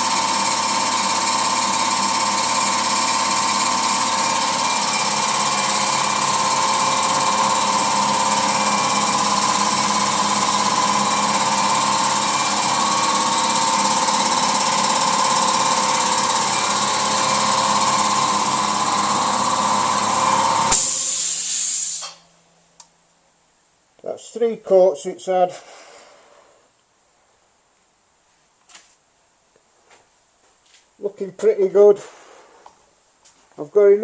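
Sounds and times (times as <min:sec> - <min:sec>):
spray painting equipment hum: 0:00.0 - 0:22.2
sharp air hiss: 0:20.7 - 0:22.3.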